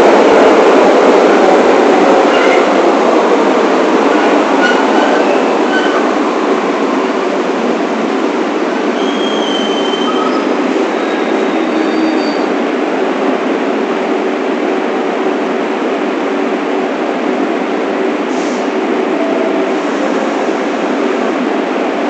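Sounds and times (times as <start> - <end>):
subway train rushing rumble: 0.0 - 22.0
wheels squealing: 9.0 - 12.5.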